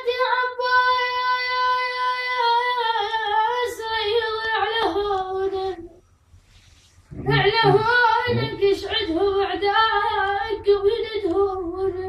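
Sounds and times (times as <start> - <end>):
child singing unaccompanied: 7.2 - 12.0.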